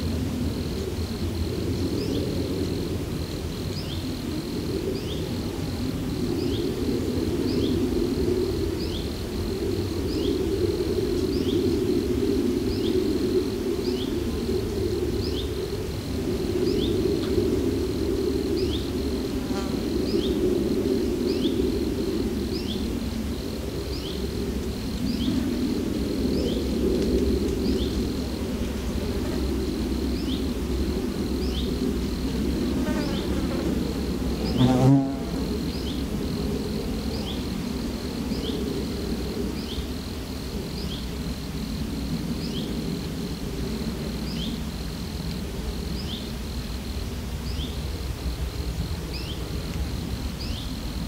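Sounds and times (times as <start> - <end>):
insects buzzing: 0.0 - 51.0
high thin insect trill: 32.6 - 36.0.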